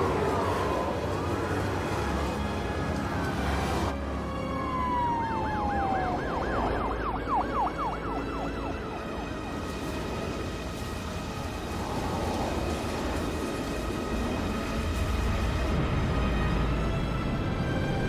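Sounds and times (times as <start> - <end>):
siren wailing and yelping: 4.4 - 9.4
steady low rumble: 8.0 - 18.0.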